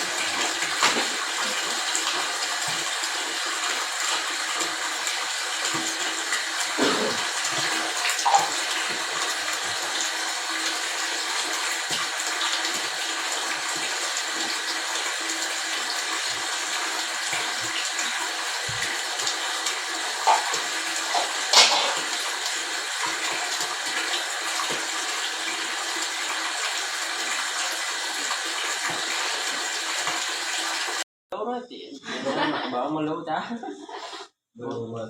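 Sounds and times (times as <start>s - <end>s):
rushing water: 0.0s - 31.0s.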